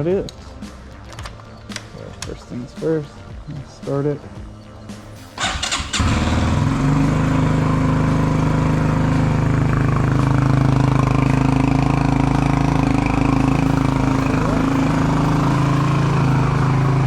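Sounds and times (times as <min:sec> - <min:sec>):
motorcycle engine starting and idling: 0:05.4 - 0:17.0.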